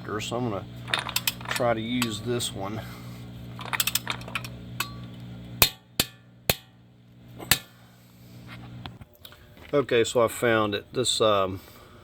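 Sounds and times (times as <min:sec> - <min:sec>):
steady hum: 0:00.0 - 0:12.0
tools clinking against metal: 0:00.9 - 0:02.2, 0:03.6 - 0:05.1.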